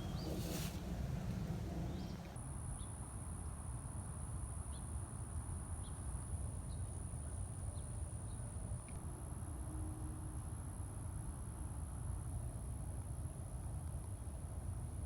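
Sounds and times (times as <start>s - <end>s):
small birds chirping: 0.0s - 2.3s
wind rumbling on microphone: 0.0s - 2.4s.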